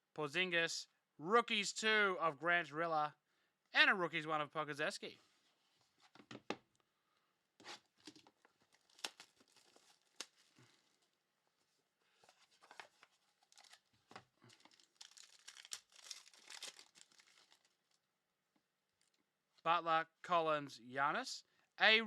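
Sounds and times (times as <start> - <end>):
card pack wrapper crinkling: 8.0 - 11.1, 12.2 - 18.0.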